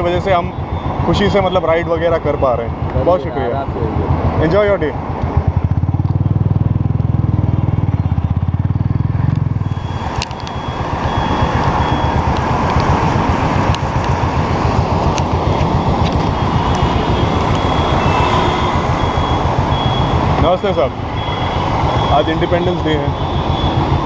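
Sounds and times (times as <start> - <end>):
traffic noise: 0.0 - 24.0
motorcycle engine pulling away: 5.4 - 20.4.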